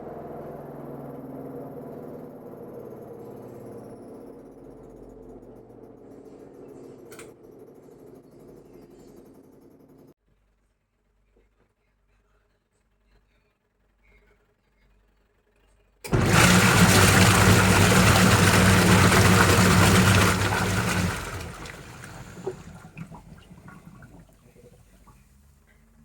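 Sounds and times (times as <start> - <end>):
washing machine churning water: 16.1 - 25.2
low motor hum: 16.1 - 25.5.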